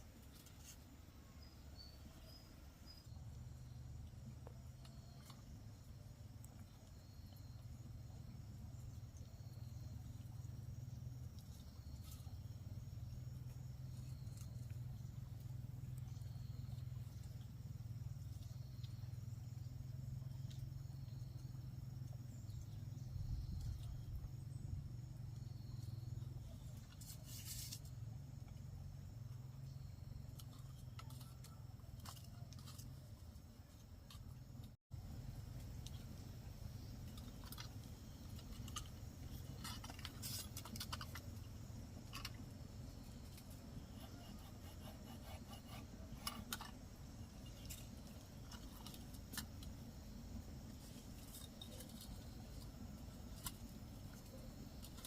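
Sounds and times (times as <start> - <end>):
insects chirping: 0.0 - 55.0
rustling: 26.7 - 28.0.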